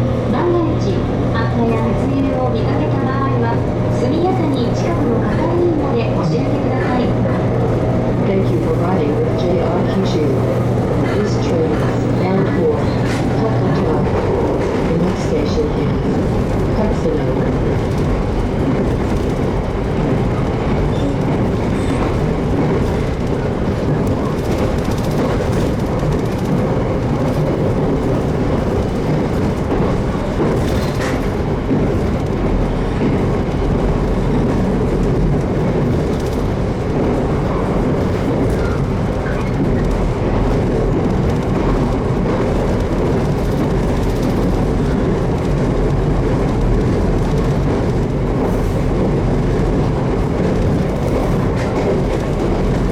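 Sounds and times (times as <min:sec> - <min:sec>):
rail joint clicks: 0:00.0 - 0:52.9
train wheels rumbling on rail: 0:00.0 - 0:52.9.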